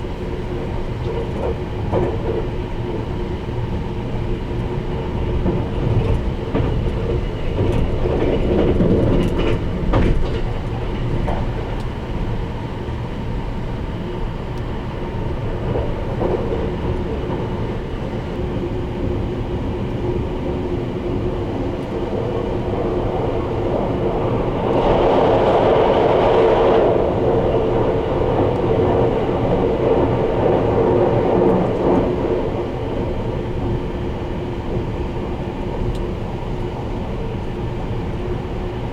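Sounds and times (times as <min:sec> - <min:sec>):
train rumble and hum: 0:00.0 - 0:38.9.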